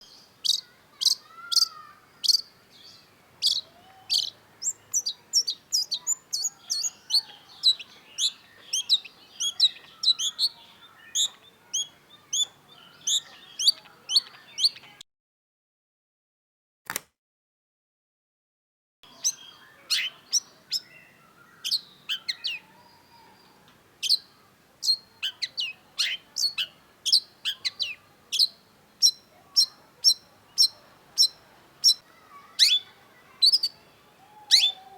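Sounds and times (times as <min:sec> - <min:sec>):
single click: 0:16.9 - 0:17.1.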